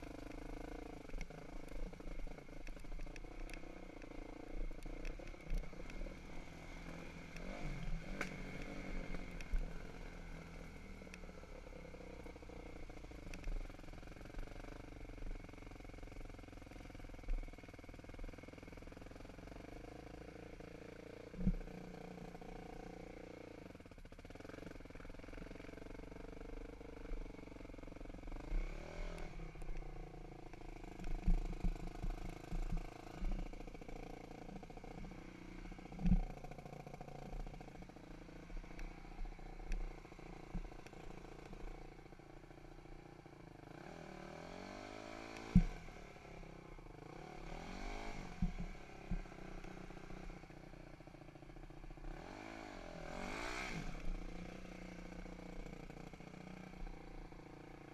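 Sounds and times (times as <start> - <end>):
dirt bike engine revving: 52.1 - 56.1.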